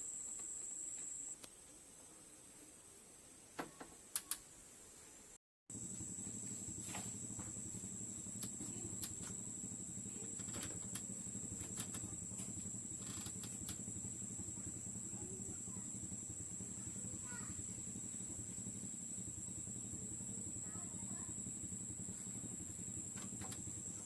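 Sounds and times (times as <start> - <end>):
steady low hum: 5.7 - 24.0.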